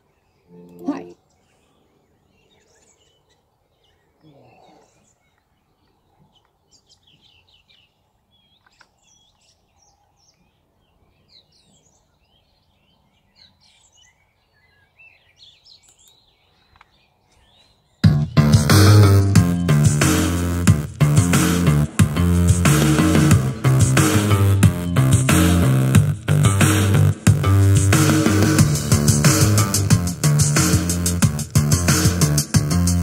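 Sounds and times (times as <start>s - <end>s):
small birds chirping and twittering: 0.0s - 18.4s.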